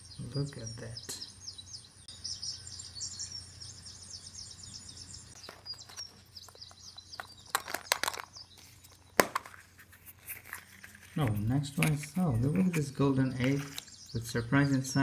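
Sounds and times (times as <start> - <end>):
birds chirping: 0.0 - 15.0
sharp clicks and crackles: 5.4 - 12.8.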